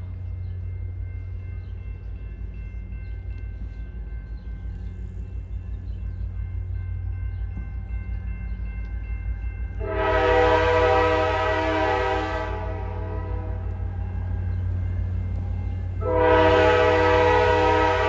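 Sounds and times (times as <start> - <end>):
diesel locomotive rumbling: 0.0 - 18.0
locomotive air horn blast: 9.8 - 13.9, 16.0 - 18.0.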